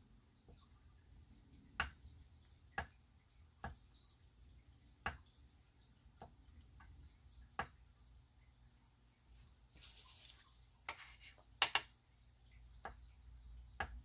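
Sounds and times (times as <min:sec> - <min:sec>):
shot glass tapping on paper: 0:10.9 - 0:11.9.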